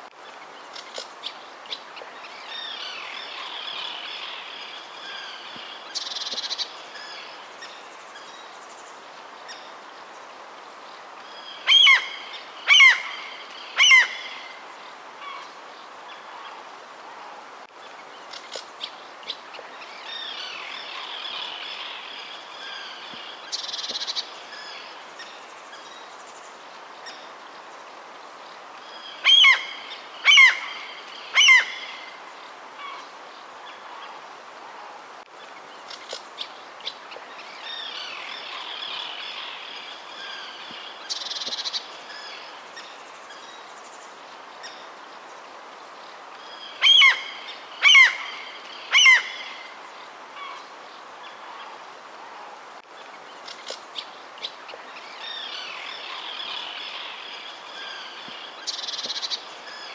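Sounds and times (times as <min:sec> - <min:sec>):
background hiss: 0:00.0 - 0:59.9.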